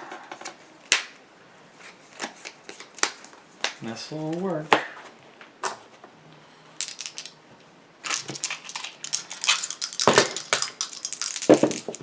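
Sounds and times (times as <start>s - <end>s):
playing cards shuffling: 8.0s - 12.0s.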